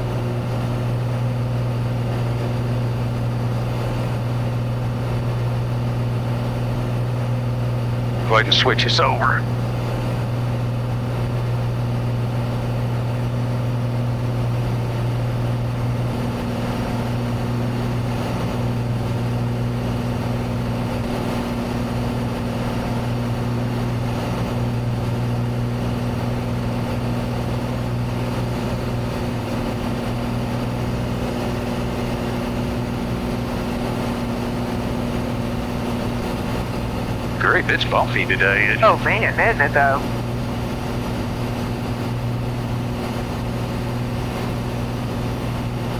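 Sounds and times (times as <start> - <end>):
propeller plane engine drone: 37.4 - 40.0.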